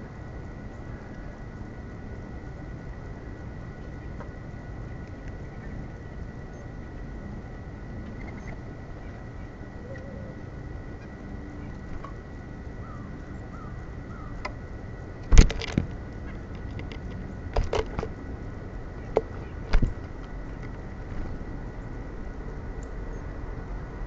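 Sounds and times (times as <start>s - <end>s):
faint bird chirps: 8.1s - 14.4s.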